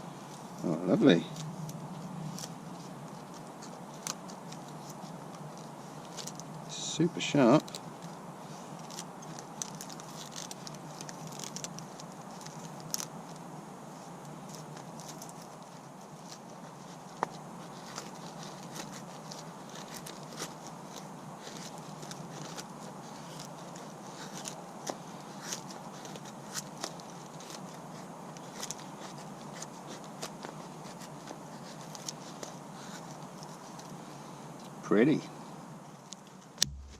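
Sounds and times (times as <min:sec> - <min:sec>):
knife shaving wood: 0:00.0 - 0:34.4.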